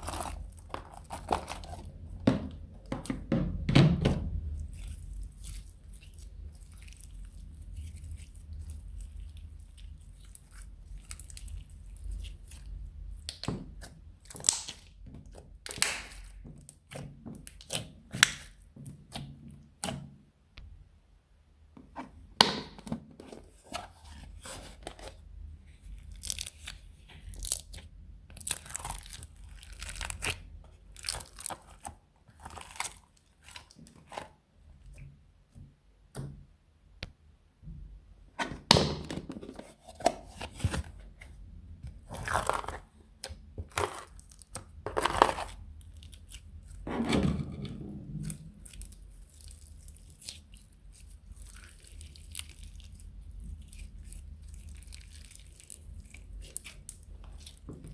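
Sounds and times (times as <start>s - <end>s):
slime squished by hand: 0.0s - 2.7s, 4.2s - 20.0s, 25.9s - 34.3s, 41.9s - 46.8s, 47.5s - 57.9s
crackling and crunching pops: 13.2s - 16.4s.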